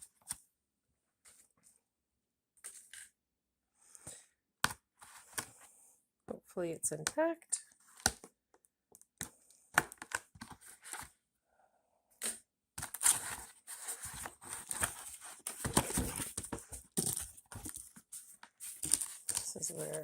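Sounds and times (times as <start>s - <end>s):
box clicks and scrapes: 12.8s - 20.0s
cardboard rustling and tearing: 12.8s - 20.0s.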